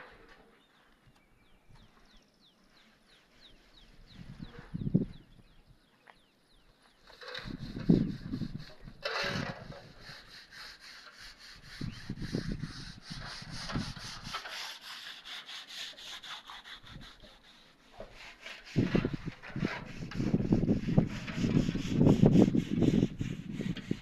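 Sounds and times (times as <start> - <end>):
scraping on a hard surface: 7.0 - 24.0.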